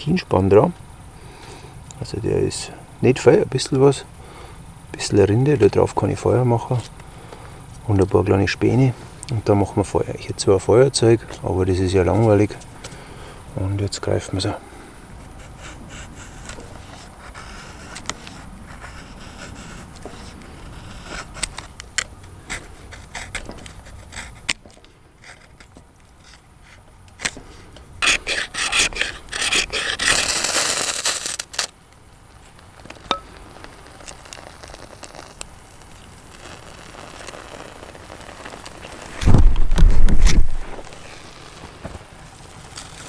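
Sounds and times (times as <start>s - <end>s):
fire rod scraping strikes: 19.9s - 31.7s, 38.4s - 43.0s
tinder rustling and clicks: 32.5s - 43.0s.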